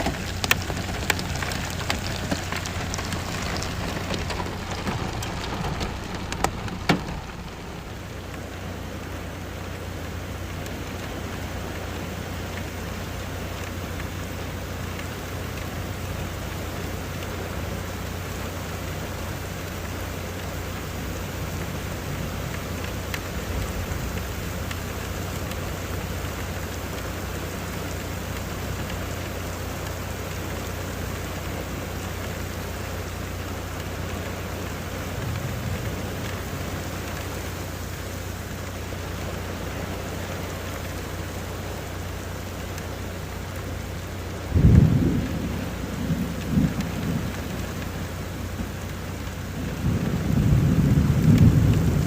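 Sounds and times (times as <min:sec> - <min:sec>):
low rumble of thunder: 0:00.0 - 0:08.5, 0:34.2 - 0:37.4, 0:44.3 - 0:52.0
heavy rain pouring: 0:00.0 - 0:52.0.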